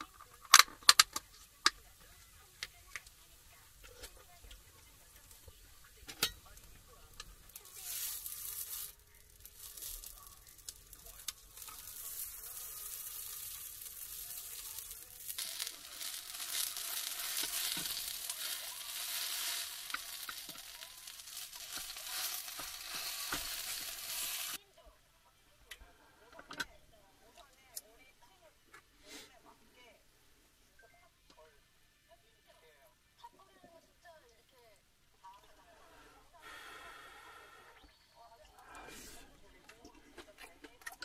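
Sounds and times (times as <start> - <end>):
food sizzling with crackles: 0.0 - 24.6.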